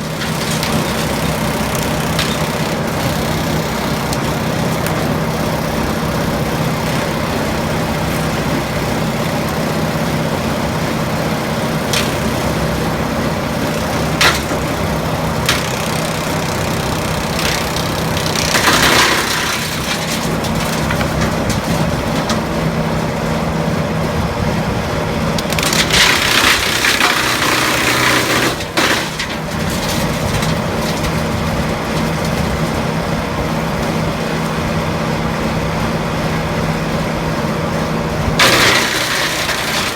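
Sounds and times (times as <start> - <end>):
sharp wood cracks: 0.0 - 7.7, 11.7 - 22.5, 25.4 - 32.5, 38.4 - 39.9
chipper shredding branches: 0.0 - 39.9
tractor running: 0.0 - 39.9.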